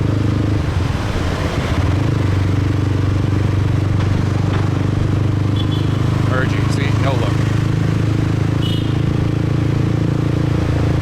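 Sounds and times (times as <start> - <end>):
motorbike engine running: 0.0 - 11.0.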